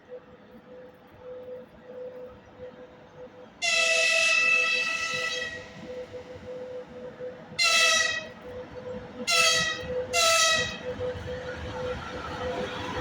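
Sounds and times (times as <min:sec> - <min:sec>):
electric locomotive horn blasts: 0:03.6 - 0:06.8, 0:07.5 - 0:11.1.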